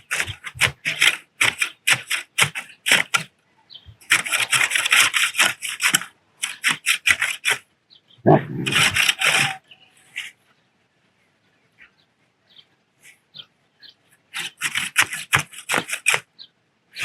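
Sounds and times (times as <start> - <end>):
weeding tool scraping soil: 0.0 - 3.3, 4.0 - 7.6, 8.5 - 10.4, 14.3 - 16.3.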